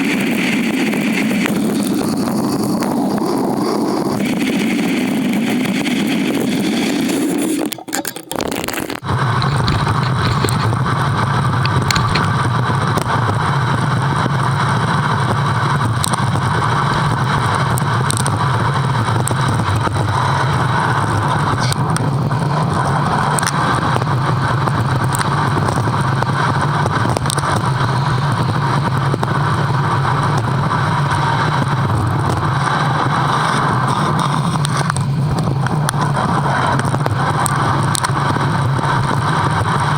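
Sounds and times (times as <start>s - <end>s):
bike riding noise: 0.0s - 39.9s
rushing wind: 9.0s - 39.9s.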